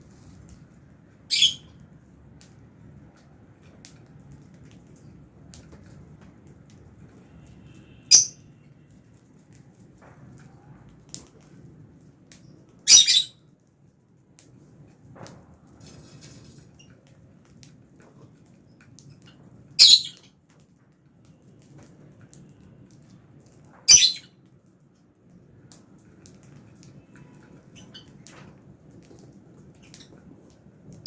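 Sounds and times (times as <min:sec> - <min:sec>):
faint bird chirps: 0:01.3 - 0:01.7
lovebirds squawking shrilly: 0:01.3 - 0:01.7.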